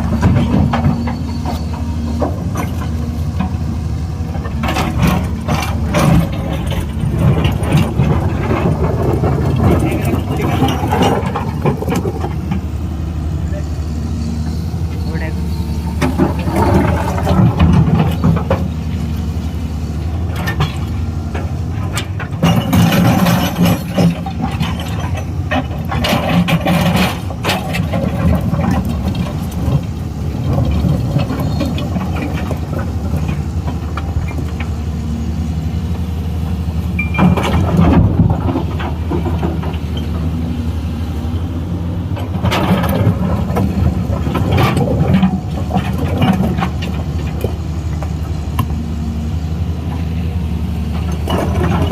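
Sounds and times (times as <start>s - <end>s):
excavator diesel engine running: 0.0s - 51.9s
machine knocking and clattering: 20.4s - 34.7s.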